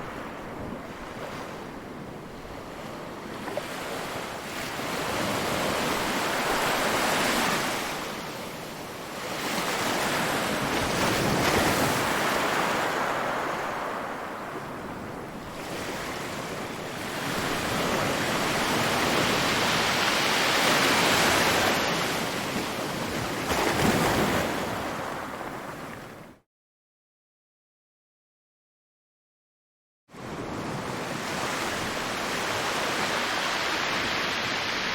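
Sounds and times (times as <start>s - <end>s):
ocean waves breaking: 9.2s - 26.2s, 30.2s - 34.9s.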